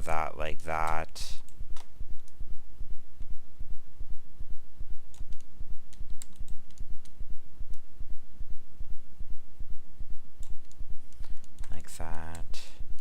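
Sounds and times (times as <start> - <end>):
mouse and keyboard clicks: 0.8 - 2.4
low throbbing pulse: 1.4 - 11.3.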